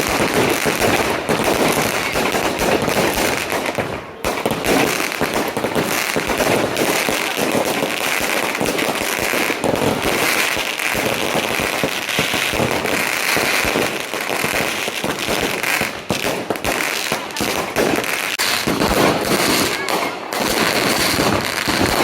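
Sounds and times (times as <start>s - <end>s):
firecrackers crackling: 0.0s - 22.0s.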